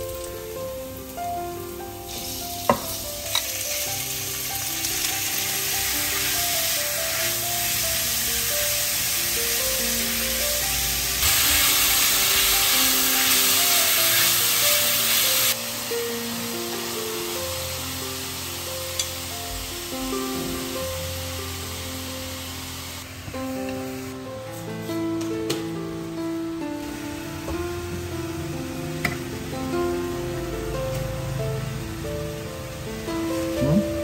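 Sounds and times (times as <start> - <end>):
meat sizzling in a pan: 0.0 - 24.7.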